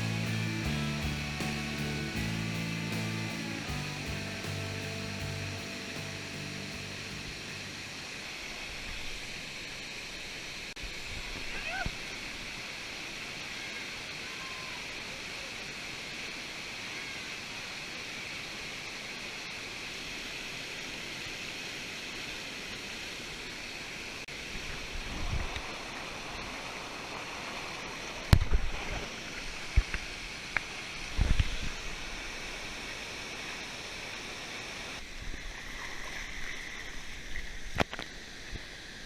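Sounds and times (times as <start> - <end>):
low thumps: 0.0 - 7.8
waterfall and stream rushing: 1.4 - 39.0.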